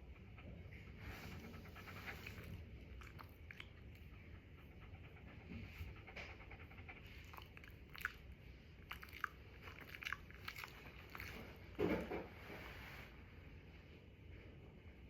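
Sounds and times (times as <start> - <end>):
dog chewing and licking: 1.1 - 12.1.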